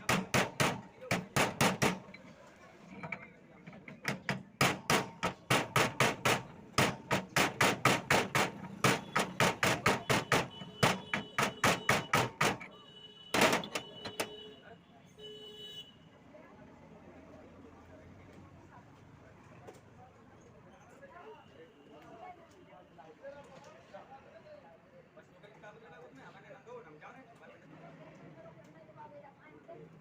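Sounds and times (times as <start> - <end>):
hammer blows on metal: 0.0 - 2.2, 4.0 - 12.7
loud rasping noise: 4.0 - 12.7.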